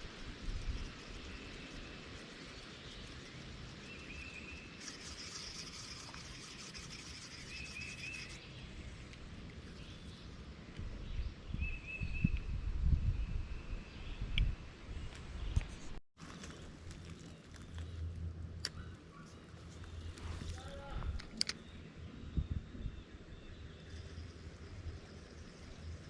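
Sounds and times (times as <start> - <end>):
cicada buzzing: 0.0 - 8.4.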